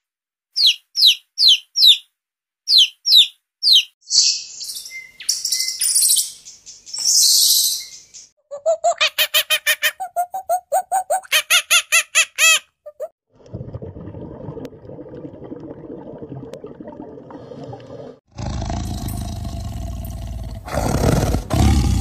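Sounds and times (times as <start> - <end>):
lions growling and roaring: 18.3 - 22.0.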